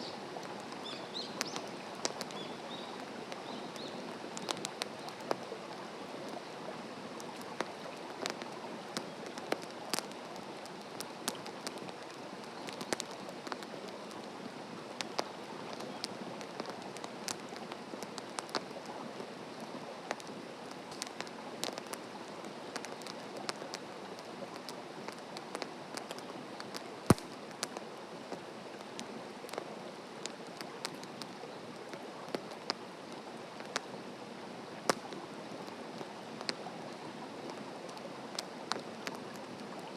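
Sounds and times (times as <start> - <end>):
wood campfire crackling: 0.0 - 39.9.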